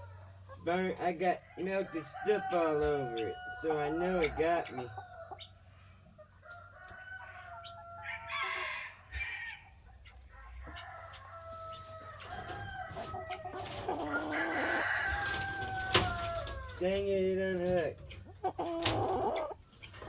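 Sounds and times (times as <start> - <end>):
roosters crowing: 0.0 - 5.8, 6.4 - 20.0.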